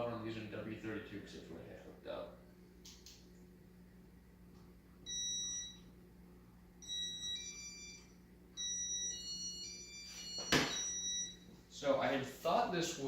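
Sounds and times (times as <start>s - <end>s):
faint steady hum: 0.0s - 13.0s
electronic beeps: 6.8s - 11.4s.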